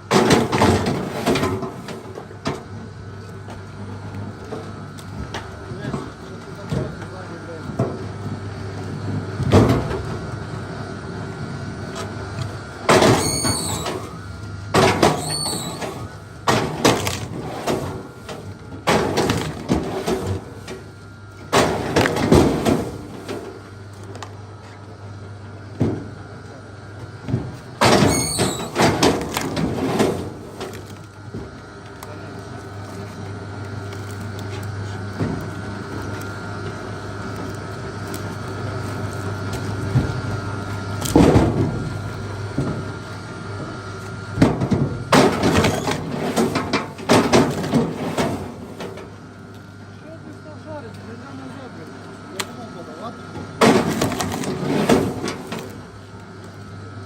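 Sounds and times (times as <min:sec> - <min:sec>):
wood cracking and creaking: 0:45.2 - 0:48.6, 0:53.6 - 0:55.8.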